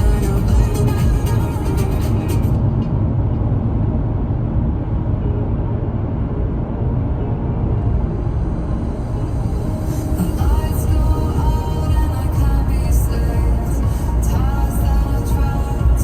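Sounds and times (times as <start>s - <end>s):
background music: 0.0s - 2.7s, 6.5s - 16.0s
car tyres on wet road: 9.8s - 16.0s.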